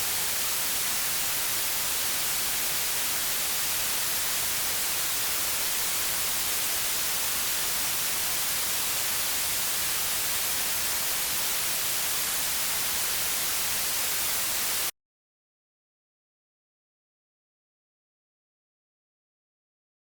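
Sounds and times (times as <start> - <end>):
white noise hiss: 0.0 - 14.9.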